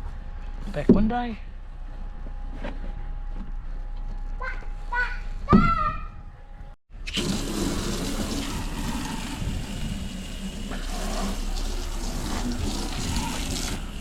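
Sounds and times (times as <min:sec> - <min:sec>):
water spraying from hose: 0:07.0 - 0:14.0.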